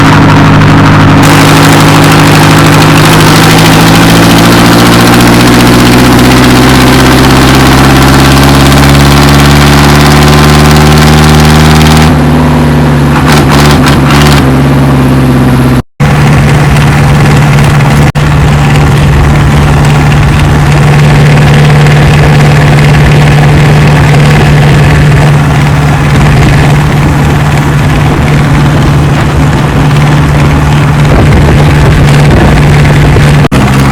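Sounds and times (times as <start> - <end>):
tractor diesel engine revving: 0.0 - 33.9.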